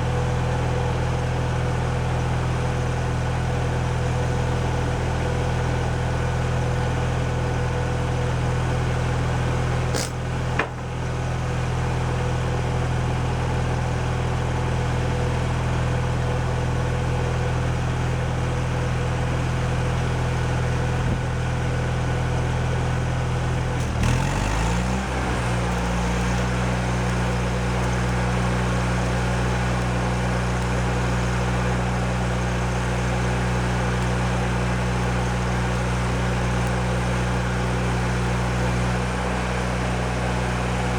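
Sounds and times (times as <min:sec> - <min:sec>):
engine running: 0:00.0 - 0:40.9
brief clicks: 0:10.0 - 0:10.8.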